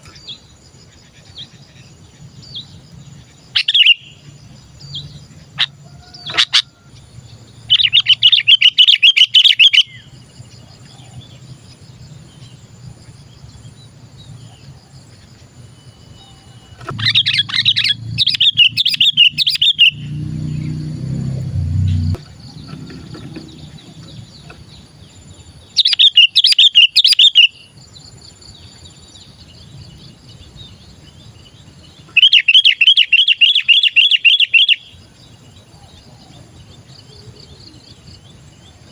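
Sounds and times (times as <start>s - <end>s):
faint bird twittering: 0.0s - 38.9s
bird chattering calls: 3.6s - 4.3s, 5.3s - 6.8s, 7.7s - 10.1s, 16.8s - 20.8s, 21.8s - 24.9s, 25.8s - 27.6s, 32.0s - 35.0s.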